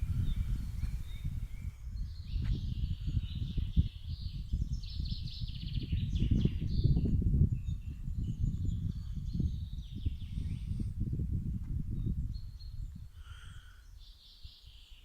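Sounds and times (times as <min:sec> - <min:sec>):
birds warbling and trilling: 0:00.0 - 0:01.8
wind buffeting microphone: 0:00.0 - 0:14.9.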